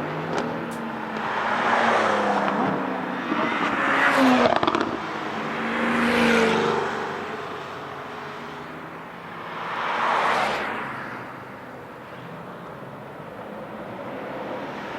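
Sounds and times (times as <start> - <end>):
race car engine revving: 0.0 - 7.6.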